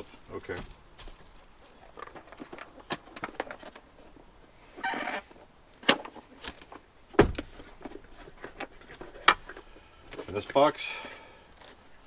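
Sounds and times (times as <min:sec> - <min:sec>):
scraping rustle: 0:07.4 - 0:12.0.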